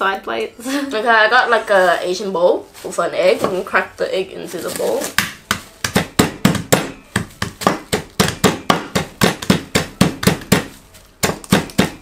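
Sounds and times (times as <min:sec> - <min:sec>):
plate pounding on wooden board: 0:05.2 - 0:12.0.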